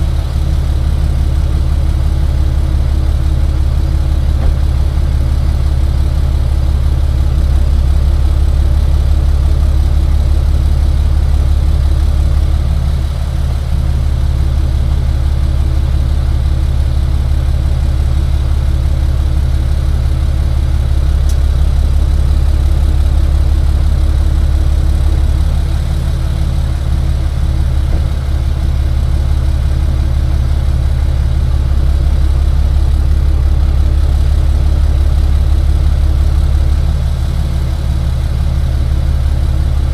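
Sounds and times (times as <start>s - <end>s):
tow truck engine running: 0.0s - 39.9s.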